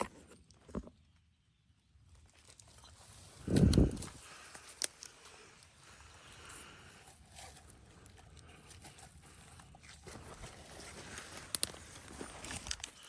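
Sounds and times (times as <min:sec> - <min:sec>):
wind rumble on microphone: 0:03.4 - 0:04.2.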